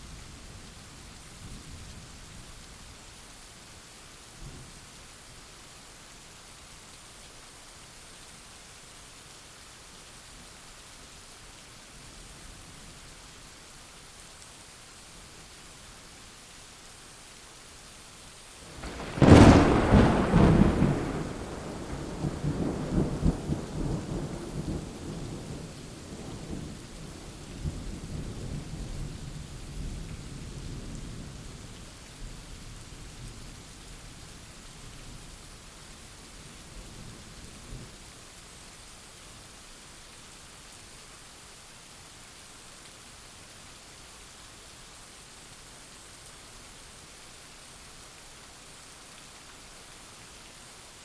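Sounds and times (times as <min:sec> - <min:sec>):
steady rain falling: 0:00.0 - 0:51.0
thunder rumbling: 0:18.7 - 0:26.8.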